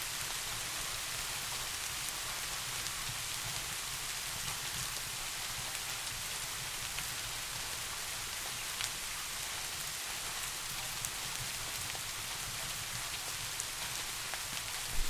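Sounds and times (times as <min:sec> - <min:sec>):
steady rain hiss: 0:00.0 - 0:15.0
sharp rain ticks: 0:11.0 - 0:15.0.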